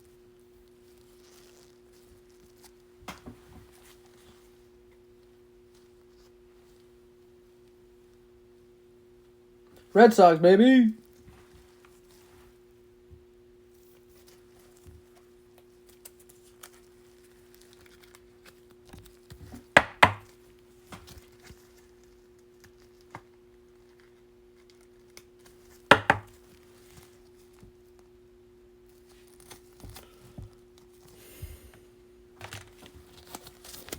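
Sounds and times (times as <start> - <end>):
faint steady hum: 0.0 - 33.9
cards slapping: 25.9 - 26.3.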